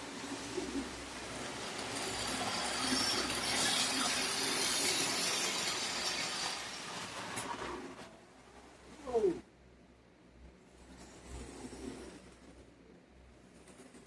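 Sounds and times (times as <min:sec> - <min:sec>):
model train rattling hum: 0:00.0 - 0:08.3.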